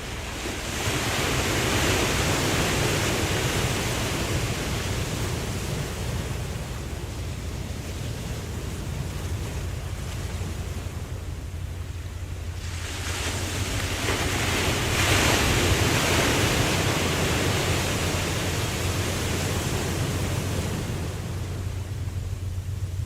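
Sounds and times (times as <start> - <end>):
low rumble of surf: 0.0 - 23.0
ocean wave breaking: 0.0 - 23.0.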